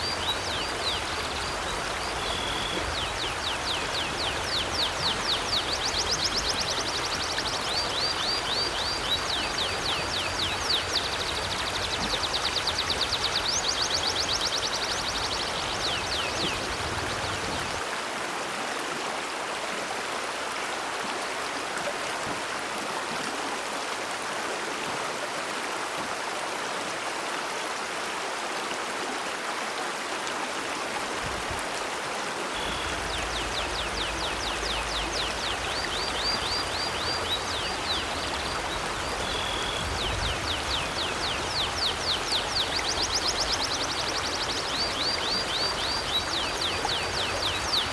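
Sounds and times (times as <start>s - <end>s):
bird chirping: 0.0s - 6.9s, 32.6s - 47.9s
river flowing: 0.0s - 47.9s.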